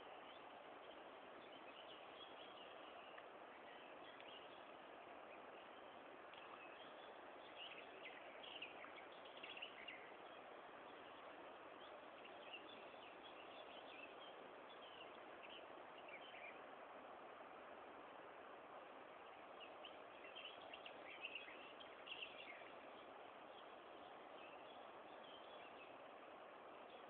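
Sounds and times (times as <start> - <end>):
faint bird chirps: 0.0 - 16.7, 19.2 - 27.0.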